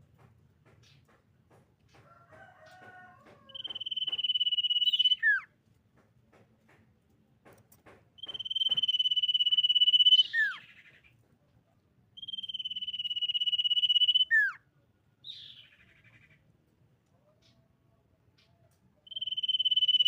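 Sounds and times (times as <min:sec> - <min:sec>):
bird trilled whistles: 0:03.6 - 0:05.5, 0:08.2 - 0:10.7, 0:12.2 - 0:14.6, 0:19.1 - 0:20.0.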